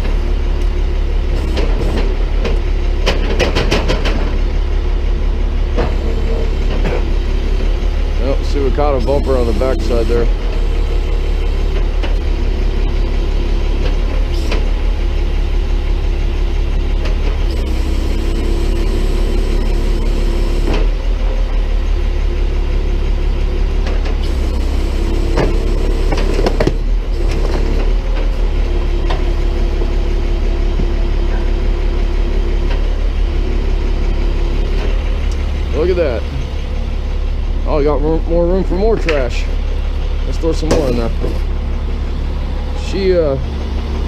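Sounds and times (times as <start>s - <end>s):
tow truck engine running: 0.0s - 44.0s
high tone above engine: 4.7s - 14.6s, 17.4s - 21.0s, 33.3s - 44.0s.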